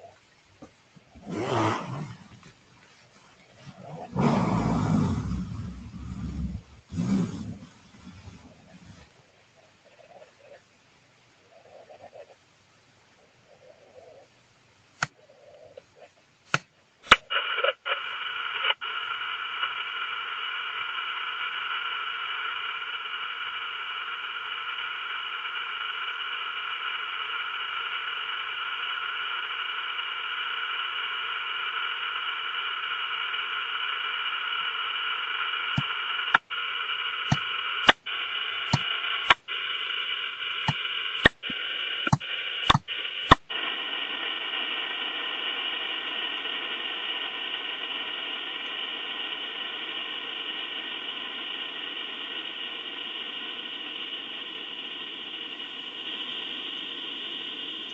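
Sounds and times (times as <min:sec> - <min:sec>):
faint steady tones: 0:00.0 - 0:57.9
static hiss: 0:00.0 - 0:57.9
sharp clicks: 0:37.2 - 0:39.6, 0:40.5 - 0:43.6.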